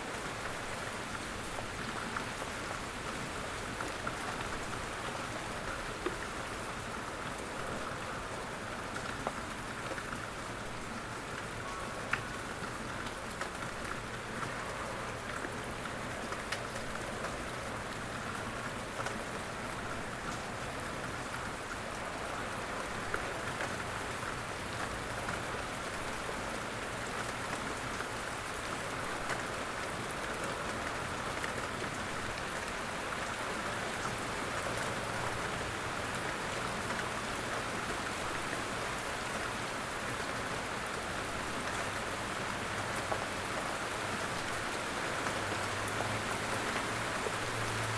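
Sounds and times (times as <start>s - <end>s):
louder raindrops: 0.0s - 47.9s
steady rain hiss: 0.0s - 47.9s.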